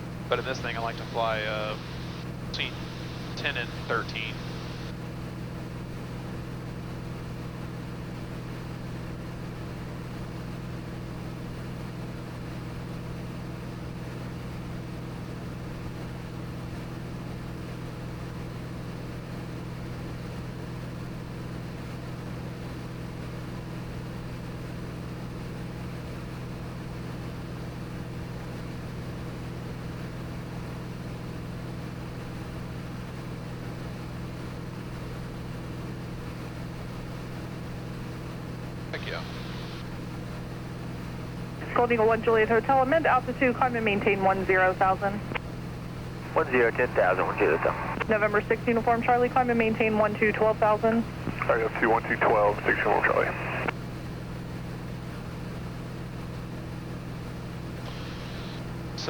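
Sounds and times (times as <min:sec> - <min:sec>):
aircraft engine and propeller droning: 0:00.0 - 0:59.0
steady hiss: 0:57.9 - 0:58.6.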